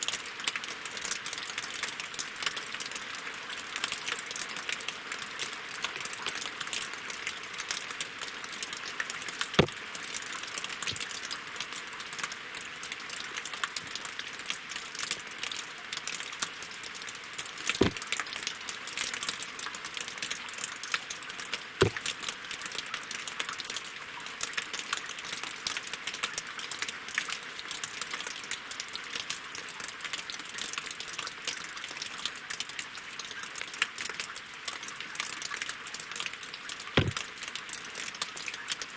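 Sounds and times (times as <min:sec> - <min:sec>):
rain falling on water and logs: 0:00.0 - 0:38.9.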